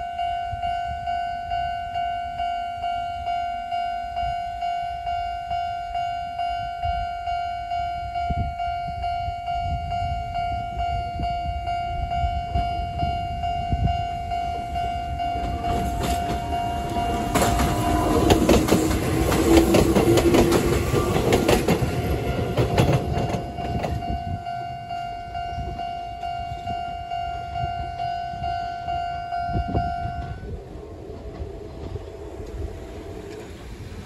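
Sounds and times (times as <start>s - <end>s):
crossing warning bell ringing: 0.0s - 34.0s
train wheels clacking over rail joints: 15.4s - 24.1s.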